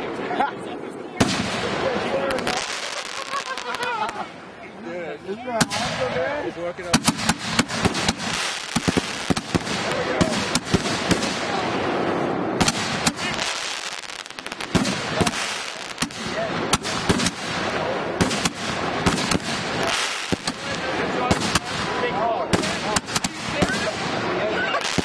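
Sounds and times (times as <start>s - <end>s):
firework hiss: 1.2s - 4.2s, 6.9s - 25.0s
firework mortar bangs: 1.2s - 4.2s, 5.6s - 6.2s, 6.8s - 25.0s.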